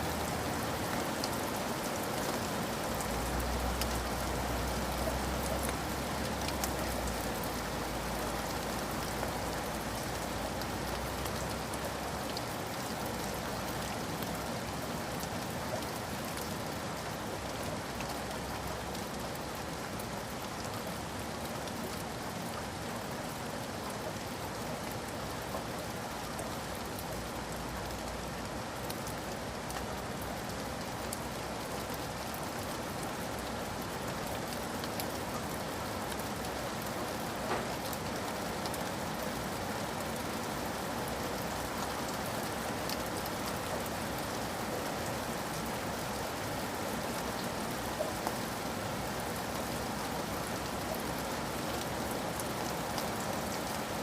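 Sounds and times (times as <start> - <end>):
steady rain falling: 0.0 - 54.0
raindrop taps: 37.4 - 38.0.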